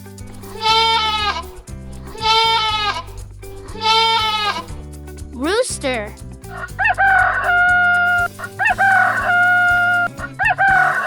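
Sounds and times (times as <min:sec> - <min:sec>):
light background music: 0:00.0 - 0:11.0
rooster crowing: 0:06.6 - 0:11.0.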